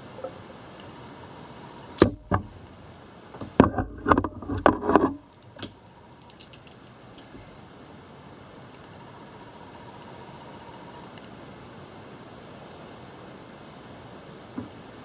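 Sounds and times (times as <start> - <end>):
metal tool clicks and rattles: 5.6 - 7.3.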